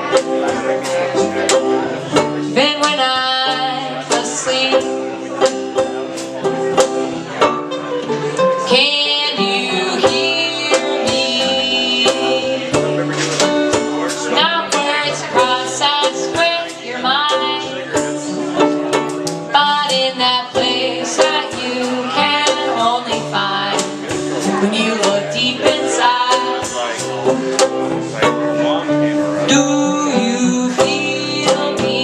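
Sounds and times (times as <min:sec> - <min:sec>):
acoustic band with plucked strings: 0:00.0 - 0:32.0.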